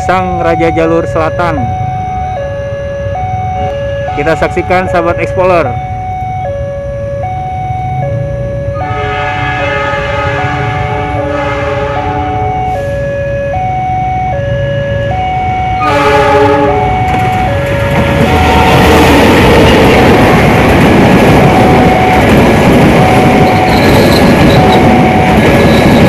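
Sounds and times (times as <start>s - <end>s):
train horn two-note chord: 8.8s - 12.5s, 15.8s - 17.0s
train wheels rumbling on rails: 16.5s - 26.0s.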